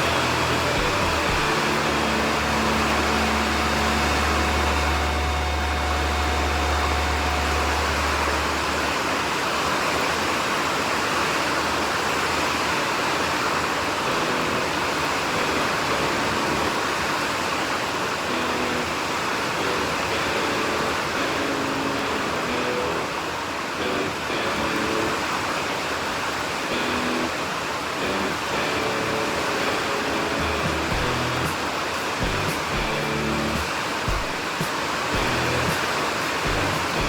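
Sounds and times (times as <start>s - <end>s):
heavy rain hissing: 0.0s - 9.9s, 14.1s - 37.0s.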